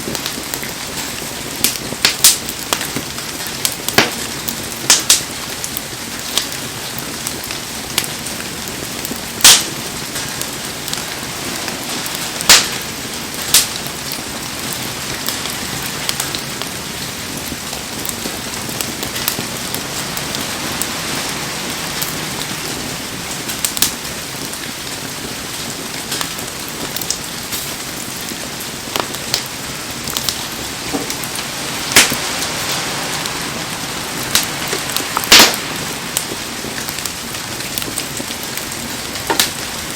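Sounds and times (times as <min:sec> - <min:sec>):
heavy rain hissing: 0:00.0 - 0:39.9
sharp pops: 0:12.4 - 0:12.8, 0:34.3 - 0:36.3.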